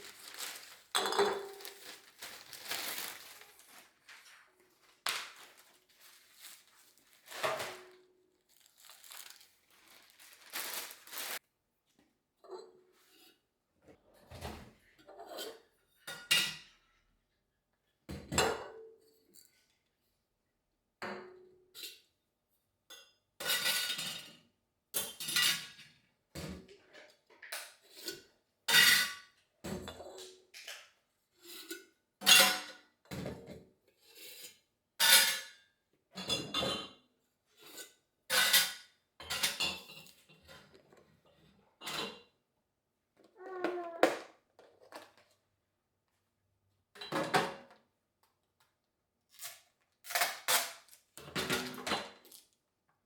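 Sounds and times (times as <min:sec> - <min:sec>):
dishes clinking and knocking: 0:01.0 - 0:01.7.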